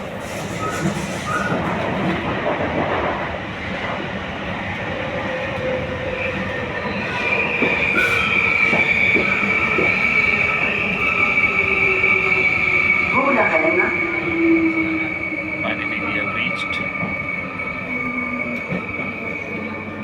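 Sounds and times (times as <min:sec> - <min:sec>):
high wheel squeal: 0:00.0 - 0:02.0, 0:06.1 - 0:20.0
train running on rails: 0:00.0 - 0:20.0.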